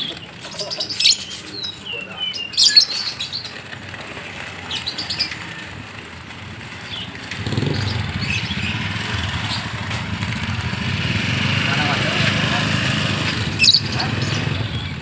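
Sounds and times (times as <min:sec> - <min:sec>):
small birds chirping: 0:00.0 - 0:15.0
birds fluttering wings: 0:02.8 - 0:15.0
low engine rumble: 0:05.7 - 0:15.0
short high bird calls: 0:07.4 - 0:09.8.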